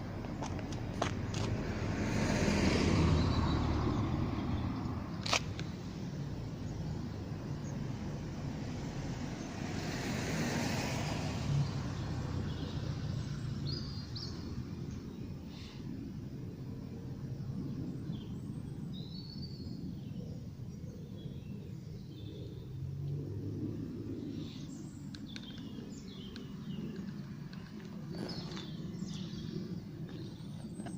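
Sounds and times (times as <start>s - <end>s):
cars passing: 0.0s - 15.4s.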